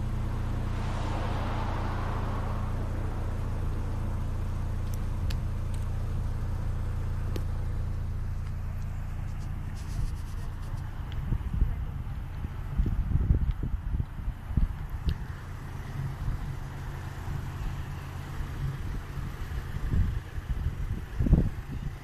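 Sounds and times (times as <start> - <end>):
car engine running: 0.0 - 22.0.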